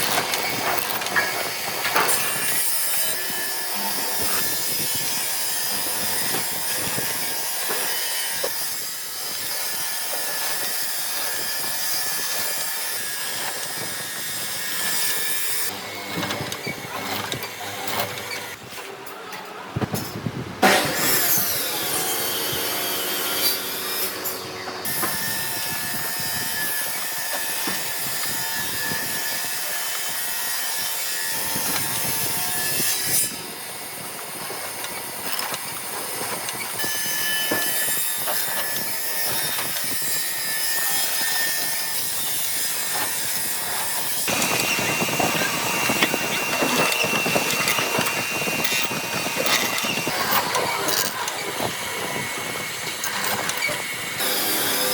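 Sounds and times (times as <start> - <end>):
power tool machine whine: 20.7 - 54.9.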